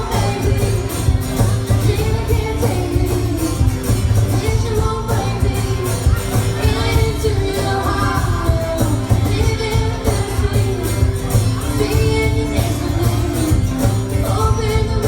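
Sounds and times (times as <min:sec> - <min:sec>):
country band playing: 0:00.0 - 0:15.0
woman singing: 0:00.0 - 0:15.0.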